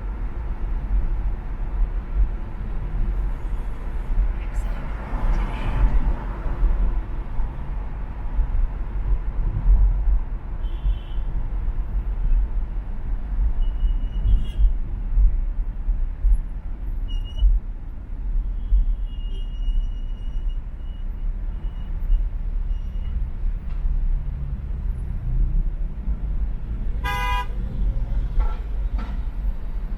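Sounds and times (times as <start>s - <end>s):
gusty wind: 0.0s - 19.1s
low road rumble: 0.0s - 29.9s.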